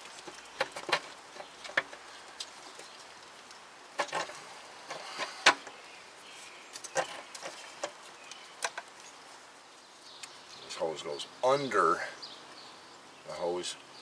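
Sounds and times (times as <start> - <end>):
hose handling clicks and knocks: 0.0 - 2.5, 4.0 - 5.8.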